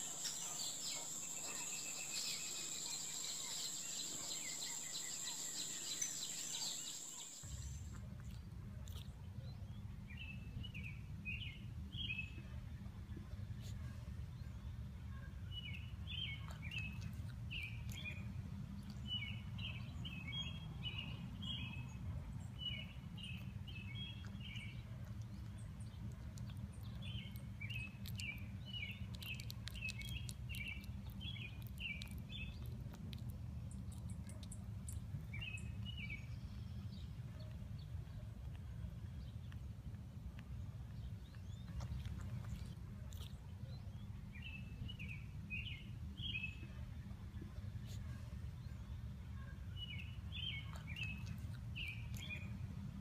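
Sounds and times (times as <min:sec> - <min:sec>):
small bird chirping: 0:00.0 - 0:08.0, 0:26.4 - 0:37.6.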